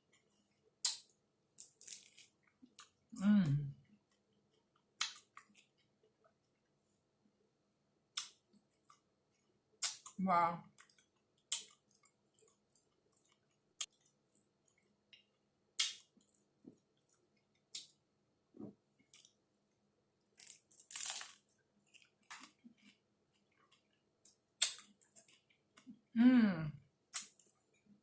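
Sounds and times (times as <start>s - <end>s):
person chewing crunchy food: 0.0s - 3.1s, 8.1s - 18.0s, 20.3s - 26.1s
wet mouth clicks: 15.8s - 16.0s.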